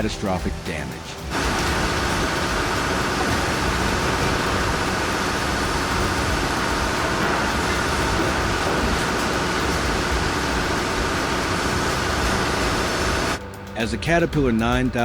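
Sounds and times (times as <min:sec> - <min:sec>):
heavy machinery diesel rumble: 0:00.0 - 0:13.4.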